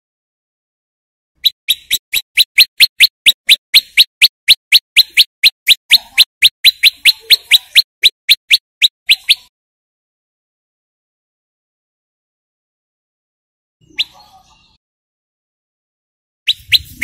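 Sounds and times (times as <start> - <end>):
bird song of rapid sharp notes: 1.4 - 9.5, 13.8 - 14.8, 16.5 - 17.0.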